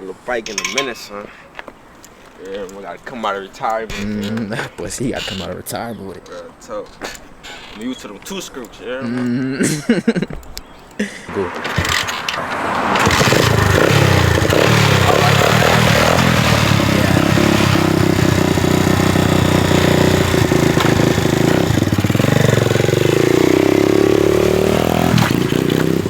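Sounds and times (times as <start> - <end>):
dirt bike engine revving: 11.3 - 26.0.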